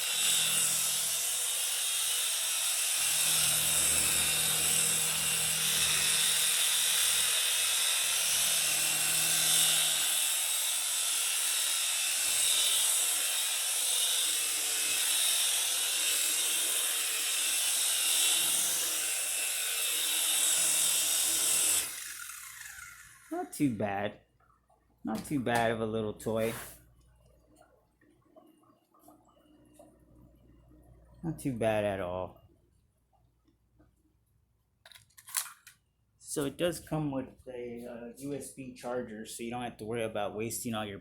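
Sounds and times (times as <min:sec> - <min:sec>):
toy helicopter motor whine: 0:00.0 - 0:23.4.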